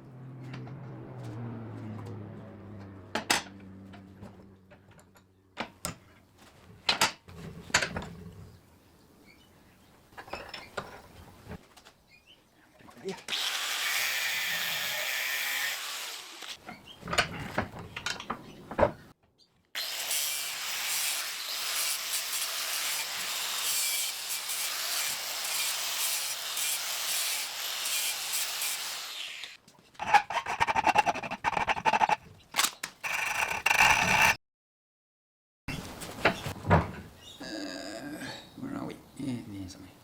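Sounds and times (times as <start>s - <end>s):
tool whine with rapid clicking: 16.1s - 16.6s, 29.4s - 34.4s.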